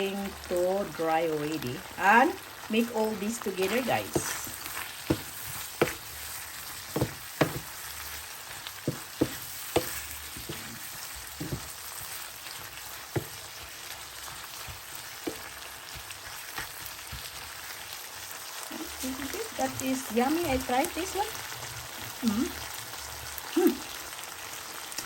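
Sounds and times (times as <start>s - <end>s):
curry sizzling in a pan: 0.0s - 25.0s
spatula knocking against pan: 5.0s - 6.1s, 6.9s - 7.8s, 8.8s - 11.8s.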